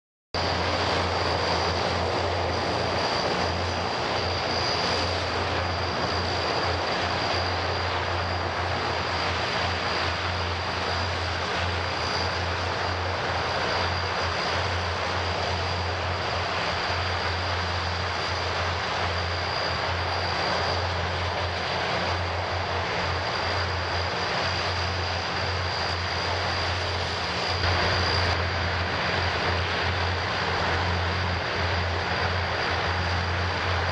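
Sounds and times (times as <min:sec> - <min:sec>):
high-pitched turbine whine: 0:00.4 - 0:33.9
turboprop engines droning: 0:00.4 - 0:33.9.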